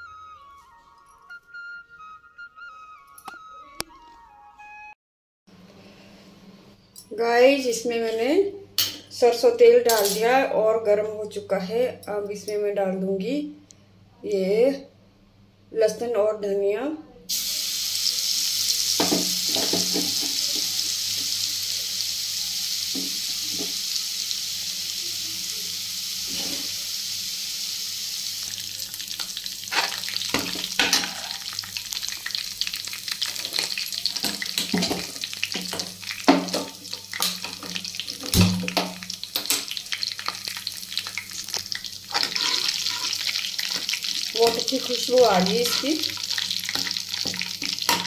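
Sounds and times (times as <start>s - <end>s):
garlic sizzling in hot oil: 17.3s - 48.0s
steel ladle scraping pan: 29.7s - 31.6s, 42.1s - 44.2s, 45.3s - 48.0s.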